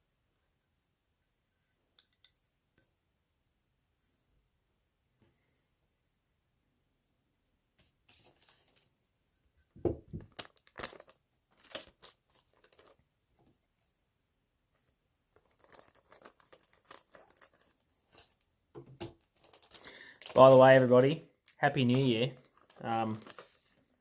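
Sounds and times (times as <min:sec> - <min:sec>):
crinkling handling noises: 0:07.8 - 0:09.0, 0:10.0 - 0:13.6, 0:14.8 - 0:24.0.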